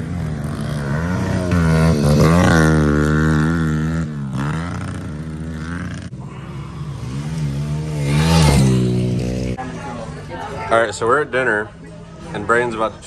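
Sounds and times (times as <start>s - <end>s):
pit bike engine revving: 0.0s - 9.6s.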